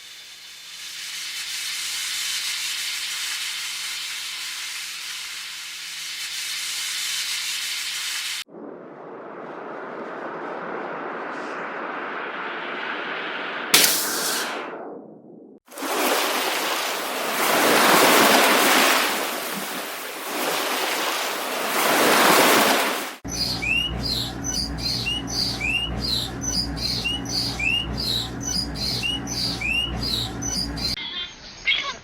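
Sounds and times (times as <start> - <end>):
waves washing in: 15.7 - 30.9
low steady hum: 23.2 - 31.0
small bird chirping: 23.2 - 31.0.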